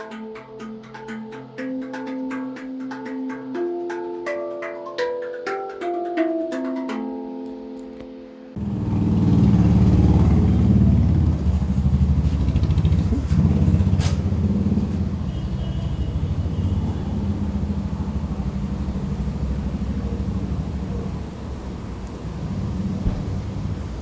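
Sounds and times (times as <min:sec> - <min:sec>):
motorcycle engine throbbing: 0:08.6 - 0:24.0.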